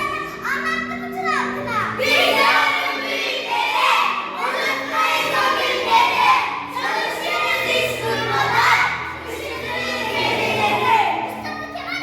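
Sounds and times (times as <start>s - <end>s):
children chanting in unison: 1.9s - 11.4s.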